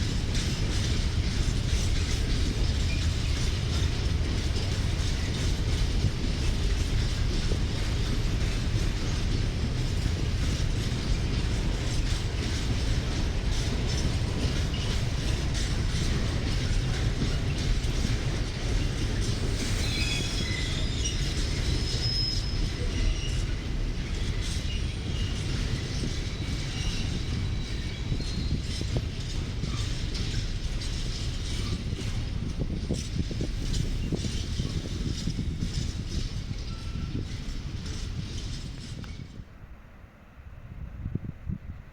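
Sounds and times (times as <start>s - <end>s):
freight train wagons rumbling: 0.0s - 41.9s
wheel squeal: 18.9s - 39.4s.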